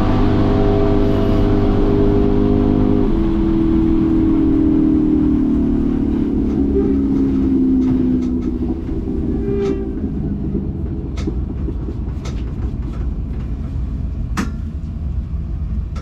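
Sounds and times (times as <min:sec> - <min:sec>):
race car engine revving: 0:00.0 - 0:12.5.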